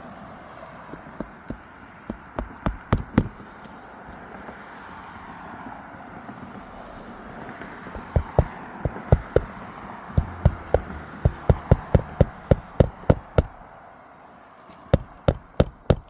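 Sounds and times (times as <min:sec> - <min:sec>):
hammer striking nails: 0:00.9 - 0:03.6, 0:07.9 - 0:09.6, 0:10.2 - 0:13.7, 0:15.0 - 0:16.0.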